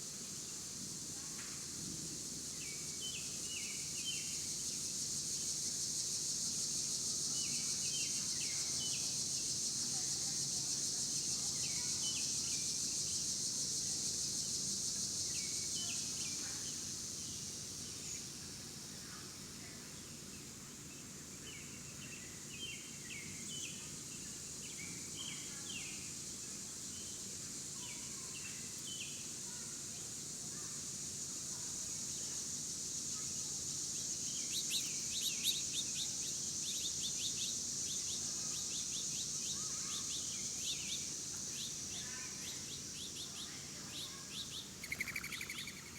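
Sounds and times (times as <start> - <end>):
small birds chirping: 34.0 - 45.9.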